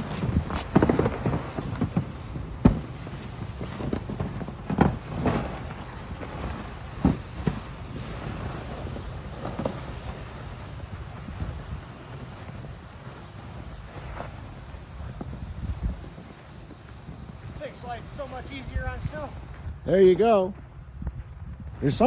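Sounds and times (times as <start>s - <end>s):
thumps and scrapes: 0.0s - 8.2s
wind rumble on microphone: 0.0s - 22.0s.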